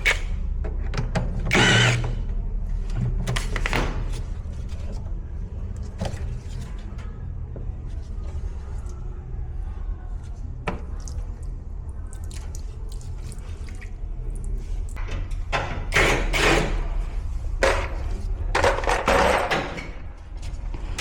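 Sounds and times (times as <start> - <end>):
steady low hum: 0.0 - 21.0
water splashing and dripping: 10.8 - 15.0.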